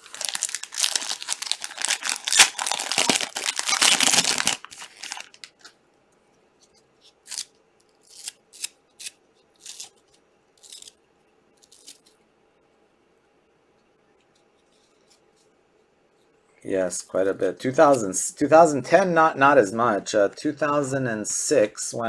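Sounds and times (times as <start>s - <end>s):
card pack wrapper tearing: 0.0s - 5.7s, 7.0s - 11.0s, 11.6s - 12.2s
wrapper crinkling: 0.0s - 5.8s.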